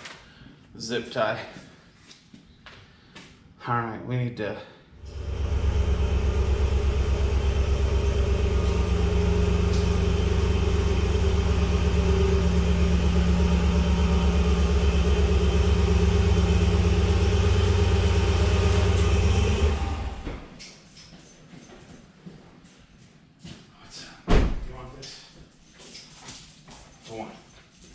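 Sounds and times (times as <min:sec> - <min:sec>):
lawn tractor engine running: 0:05.0 - 0:20.2.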